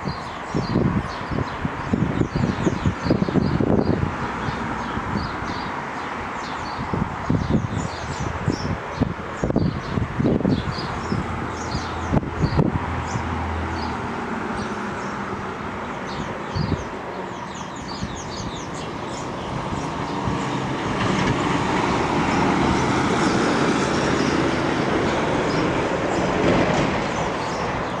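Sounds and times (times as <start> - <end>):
rail noise: 0.0 - 28.0
diesel locomotive engine: 8.3 - 28.0.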